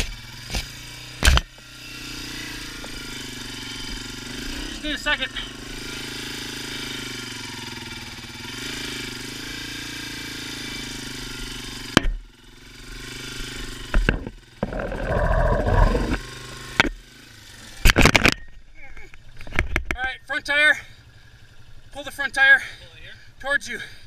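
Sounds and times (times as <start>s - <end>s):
motorcycle engine idling: 1.1s - 8.6s, 9.2s - 24.0s
loud rough noise: 14.1s - 17.0s.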